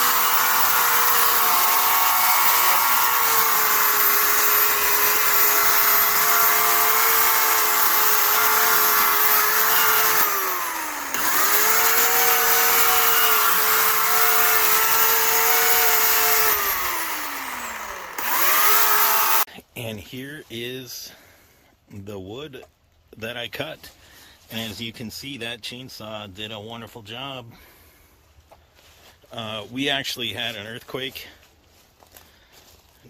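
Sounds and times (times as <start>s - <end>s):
electric chainsaw running: 0.0s - 19.5s.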